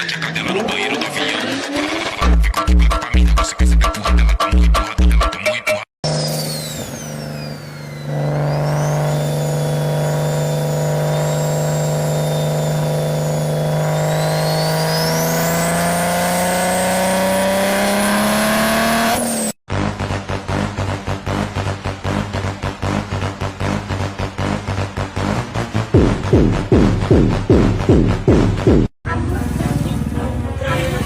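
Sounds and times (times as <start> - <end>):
vehicle engine revving: 0.0 - 2.5, 6.0 - 31.0
beat-driven music: 0.4 - 5.8, 19.7 - 28.9
high whine: 6.0 - 28.0.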